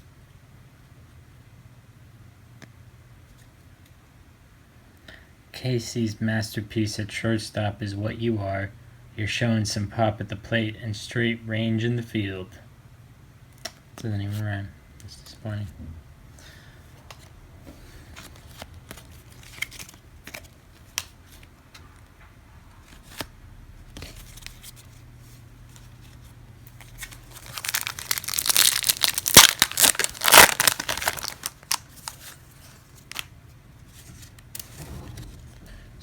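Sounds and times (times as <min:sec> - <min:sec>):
wrapper tearing and crinkling: 0:26.7 - 0:33.3.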